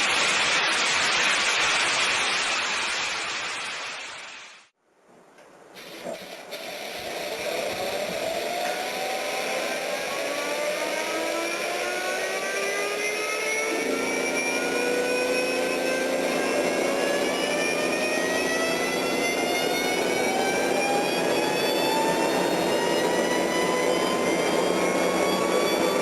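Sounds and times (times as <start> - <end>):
jet engine whine spooling up: 5.9 - 26.0.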